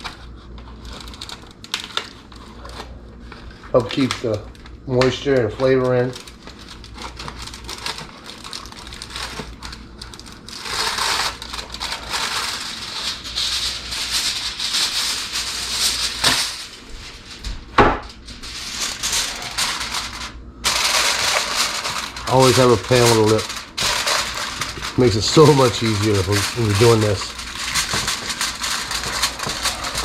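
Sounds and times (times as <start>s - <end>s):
aluminum foil crinkling: 0.0s - 30.0s.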